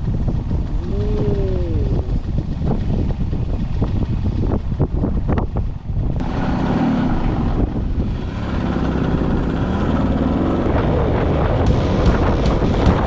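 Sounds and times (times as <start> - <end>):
two-stroke motorcycle engine running: 0.0 - 5.7, 11.7 - 13.0
wind on microphone: 0.0 - 13.0.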